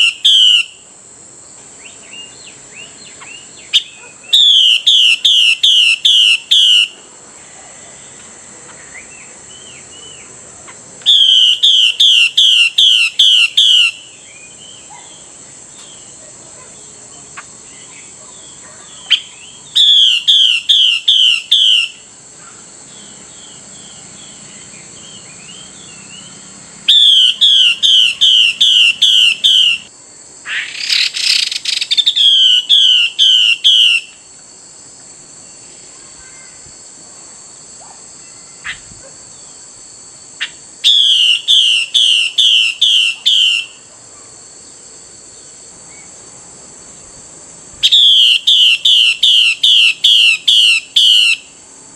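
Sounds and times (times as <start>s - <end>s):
bird call with sliding notes: 0.0s - 0.8s, 1.8s - 7.0s, 7.7s - 16.2s, 17.3s - 23.2s, 23.8s - 29.9s, 30.5s - 34.2s, 40.4s - 43.8s, 47.8s - 51.6s
steady high hiss: 0.0s - 51.9s
faint bird chirps: 1.8s - 29.9s, 35.4s - 36.7s.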